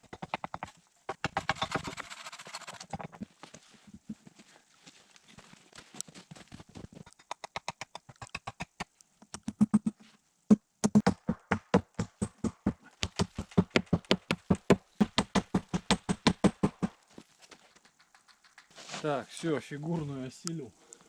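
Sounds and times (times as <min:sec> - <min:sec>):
hand tool striking wood: 0:10.8 - 0:16.9.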